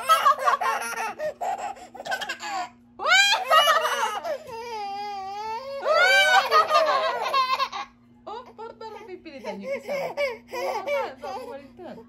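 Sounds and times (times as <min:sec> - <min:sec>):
babies laughing and squealing: 0:00.0 - 0:08.0.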